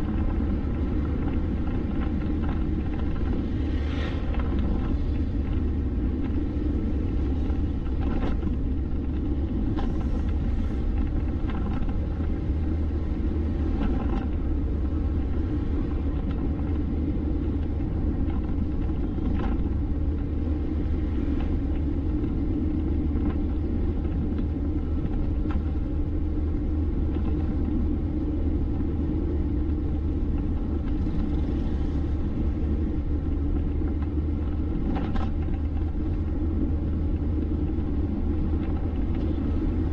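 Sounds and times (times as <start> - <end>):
vehicle driving on a road: 0.0 - 39.9.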